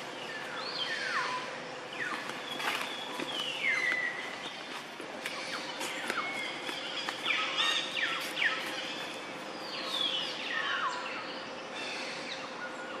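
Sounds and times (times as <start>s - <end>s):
birds whistling downward notes: 0.0s - 4.7s
faint hum: 0.0s - 13.0s.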